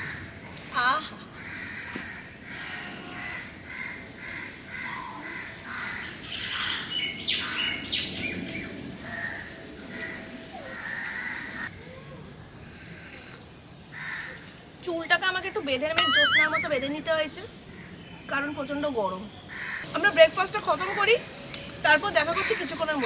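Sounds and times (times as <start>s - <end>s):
sharp high bird chirps: 16.0s - 16.9s
birds calling: 16.0s - 17.0s.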